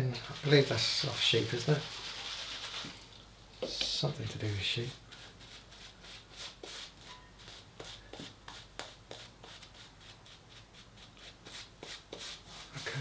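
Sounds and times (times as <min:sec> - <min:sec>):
shaving brush swishing lather: 0:00.2 - 0:03.0.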